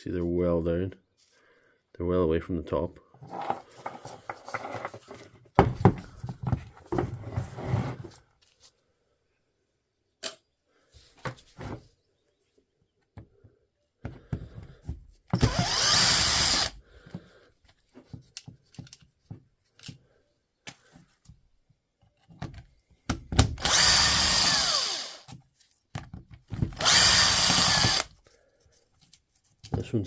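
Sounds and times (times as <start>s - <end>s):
electric driver motor running: 15.4s - 16.7s, 23.6s - 25.3s, 26.8s - 28.1s
parts clicking and knocking: 18.0s - 20.0s.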